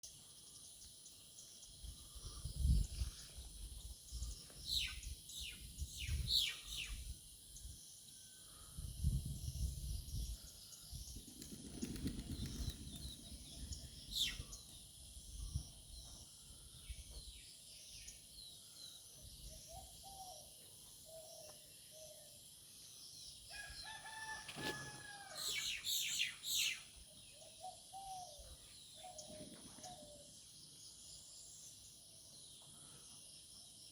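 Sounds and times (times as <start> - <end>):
rooster crowing: 23.5 - 25.8.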